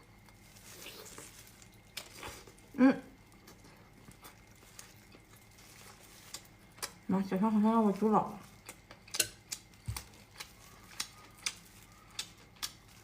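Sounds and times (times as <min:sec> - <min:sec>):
soft rustle: 0:00.3 - 0:02.6
faint eating clicks: 0:08.4 - 0:13.0.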